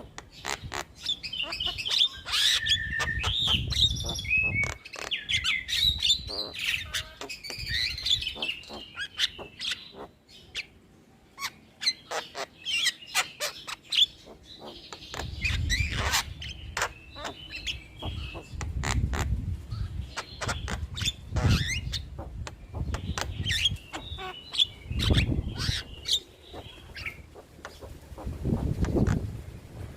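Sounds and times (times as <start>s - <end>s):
bird calling with clicks and whistles: 0.0s - 10.1s.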